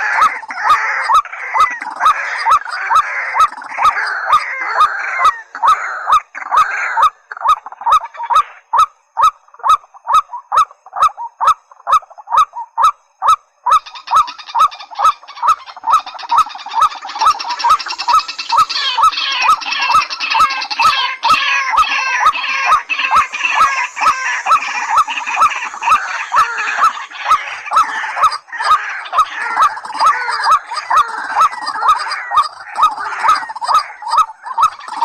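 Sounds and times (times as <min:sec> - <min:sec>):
rail bird honking calls: 0:13.7 - 0:35.0
hissing high chorus: 0:16.9 - 0:28.5.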